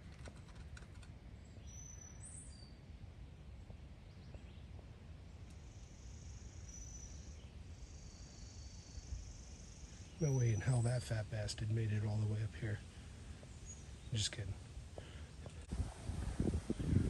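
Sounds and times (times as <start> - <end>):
bird chirps: 1.4 - 2.9, 5.5 - 14.5.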